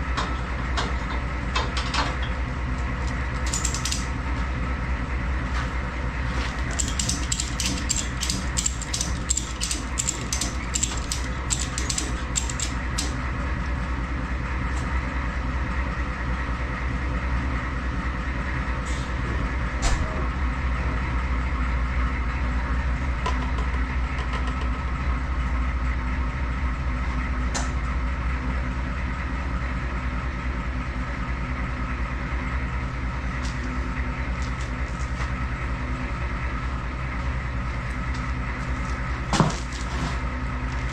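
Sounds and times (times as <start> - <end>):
rapid clicking: 3.4 - 4.1, 6.7 - 13.2.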